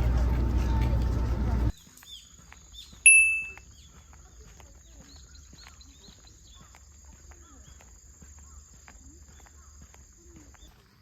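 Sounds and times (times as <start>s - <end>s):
low rumble: 0.0s - 1.7s
small birds chirping: 0.0s - 11.0s
thin steady high tone: 3.1s - 3.6s.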